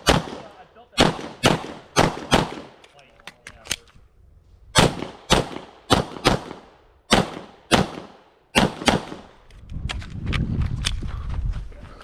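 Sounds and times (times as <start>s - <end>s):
pistol shots: 0.0s - 2.8s, 4.8s - 9.4s.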